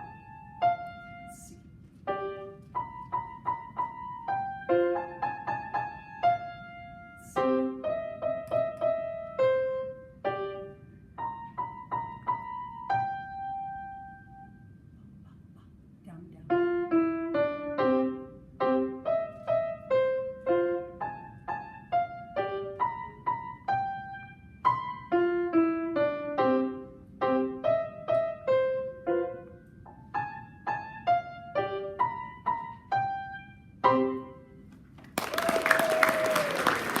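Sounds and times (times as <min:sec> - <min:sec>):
solo piano playing detached notes: 0:02.0 - 0:14.6, 0:16.5 - 0:34.6
audience applause: 0:35.0 - 0:37.0.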